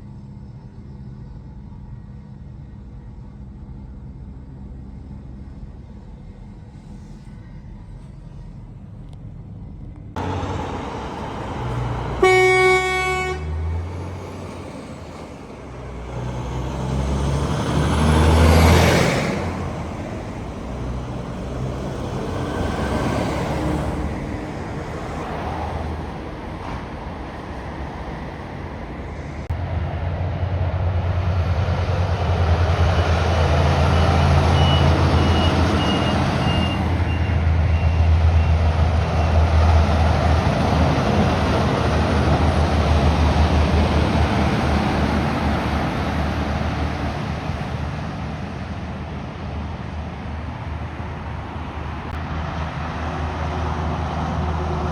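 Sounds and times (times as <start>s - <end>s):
truck diesel engine droning past: 10.1s - 54.9s.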